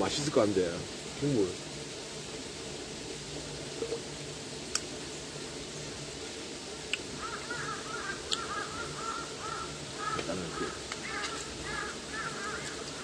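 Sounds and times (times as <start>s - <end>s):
birds calling: 6.8s - 13.0s.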